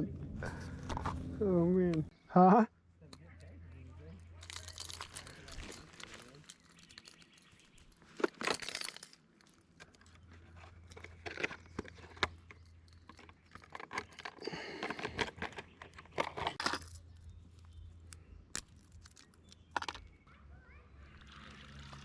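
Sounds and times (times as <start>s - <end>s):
low steady hum: 0.0s - 7.0s
sharp clicks and light rattles: 3.0s - 20.3s
rustling and crinkling: 3.4s - 20.2s.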